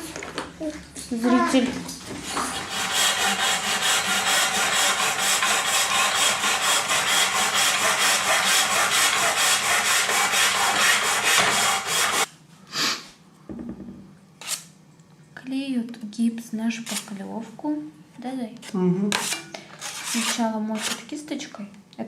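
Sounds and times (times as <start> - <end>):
hand saw cutting plaster: 2.3 - 12.3, 19.1 - 21.0.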